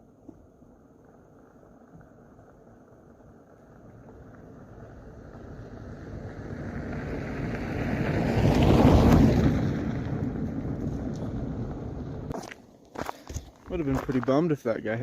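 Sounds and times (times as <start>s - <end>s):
vehicle driving past: 3.8s - 12.3s.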